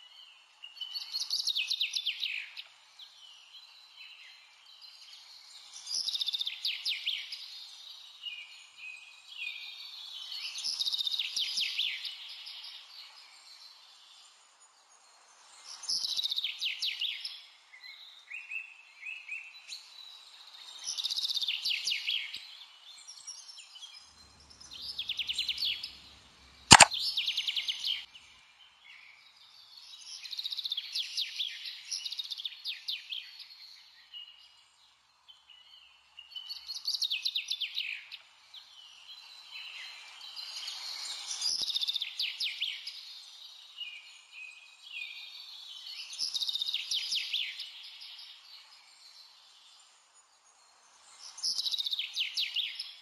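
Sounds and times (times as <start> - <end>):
sharp click: 26.7 - 26.9.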